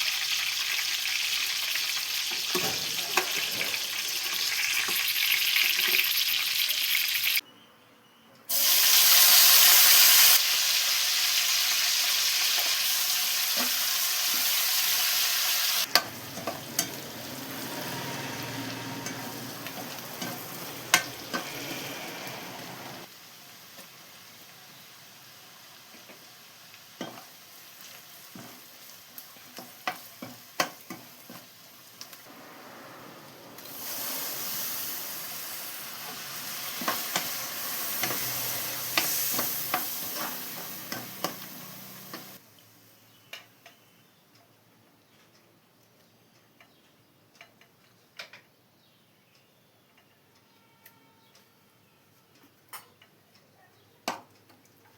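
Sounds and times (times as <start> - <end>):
food sizzling in a pan: 0.0 - 7.4, 8.5 - 43.1
utensil scraping a pan: 15.9 - 23.1.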